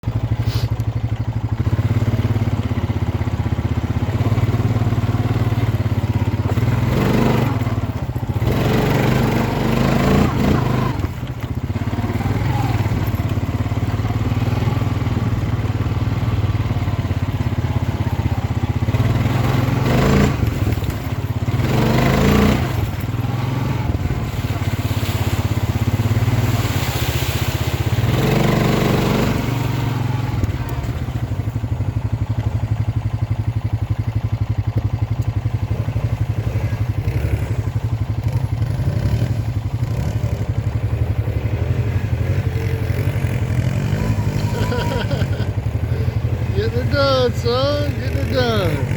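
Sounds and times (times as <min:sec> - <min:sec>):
atv engine running: 0:00.0 - 0:48.9.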